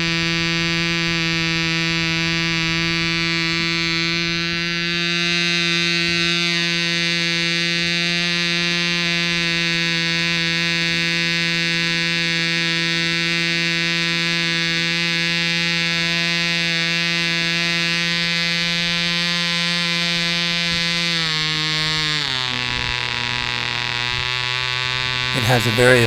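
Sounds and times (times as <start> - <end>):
model airplane engine buzzing: 0.0 - 26.0.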